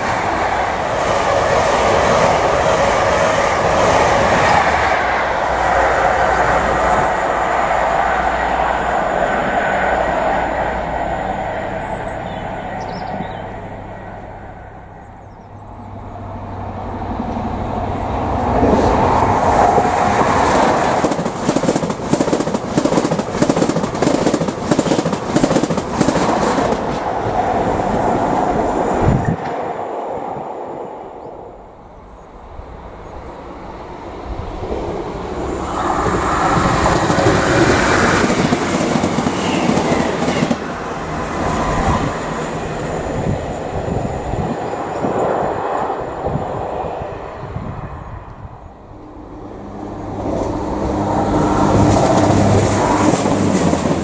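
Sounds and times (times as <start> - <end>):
train wheels clattering over rails: 17.2 - 29.7, 34.5 - 46.2, 49.6 - 54.0.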